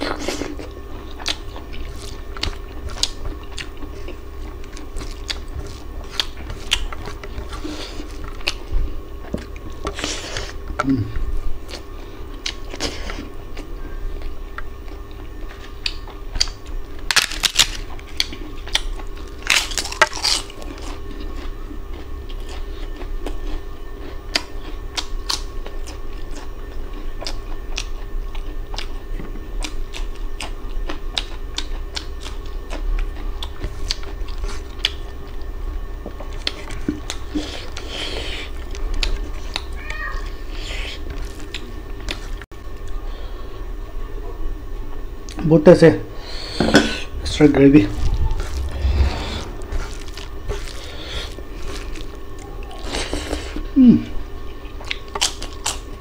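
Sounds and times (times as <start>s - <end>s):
person chewing wetly: 0.0s - 39.8s, 47.9s - 53.7s, 54.8s - 56.0s
low hum: 46.1s - 52.8s.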